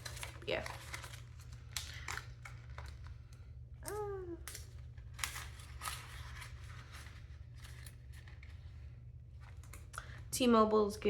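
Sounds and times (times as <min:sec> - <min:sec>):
paper rustling: 0:04.4 - 0:09.8.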